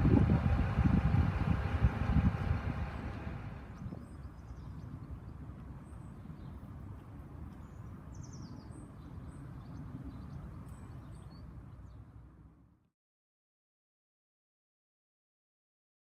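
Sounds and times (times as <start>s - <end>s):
wind rumbling on microphone: 0.0s - 12.5s
small birds chirping: 3.5s - 12.2s.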